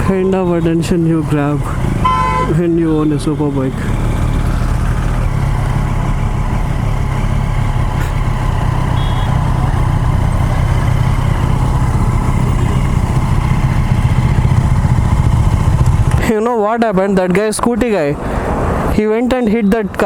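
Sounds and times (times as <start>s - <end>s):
motorcycle engine running at low revs: 0.0s - 16.4s.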